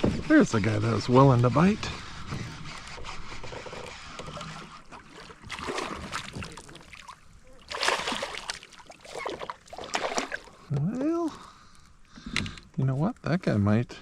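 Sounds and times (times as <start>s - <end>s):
water splashing and sloshing: 0.0s - 11.1s.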